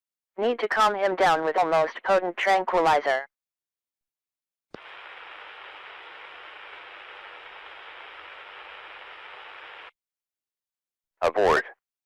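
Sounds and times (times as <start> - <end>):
radio static hiss: 4.8 - 9.9.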